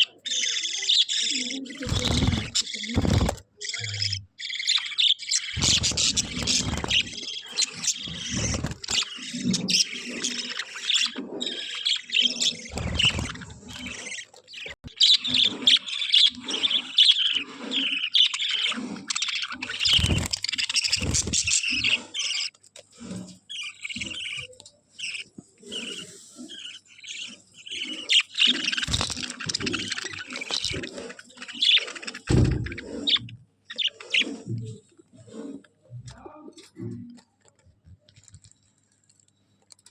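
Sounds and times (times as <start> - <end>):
budgerigars chattering: 0.0 - 34.5.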